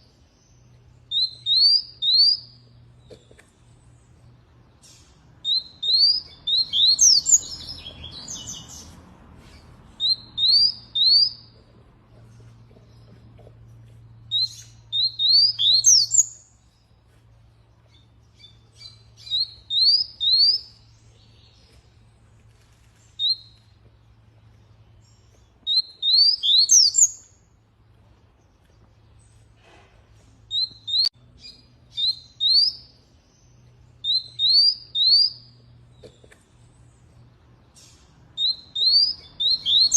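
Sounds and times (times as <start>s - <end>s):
canary chirping: 1.0s - 2.7s, 4.7s - 13.3s, 14.0s - 16.8s, 17.9s - 21.8s, 23.1s - 23.7s, 24.6s - 27.5s, 30.5s - 35.7s, 37.7s - 39.9s.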